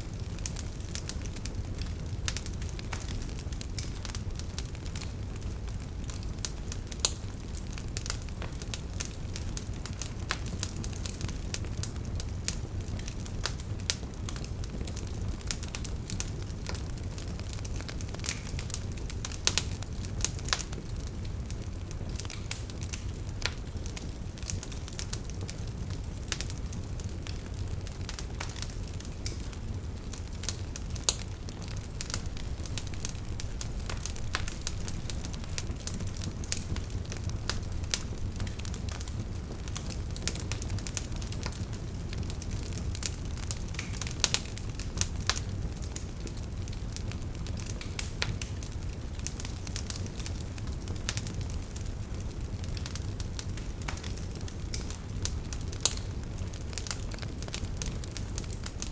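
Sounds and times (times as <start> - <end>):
campfire flames rumbling: 0.0 - 58.9
firewood crackling and popping: 0.0 - 58.9.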